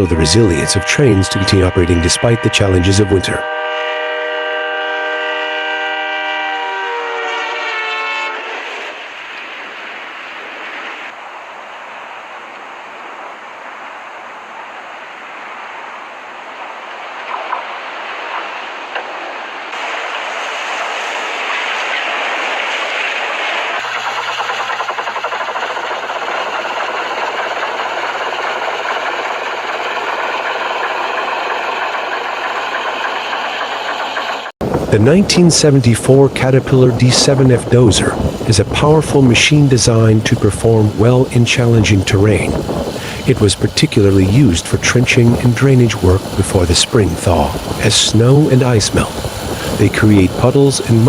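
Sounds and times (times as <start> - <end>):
locomotive air horn chord: 0.0 - 9.0
train rushing past: 0.0 - 51.0
heavy machinery engine: 19.8 - 51.0
mechanical clatter: 20.8 - 34.9.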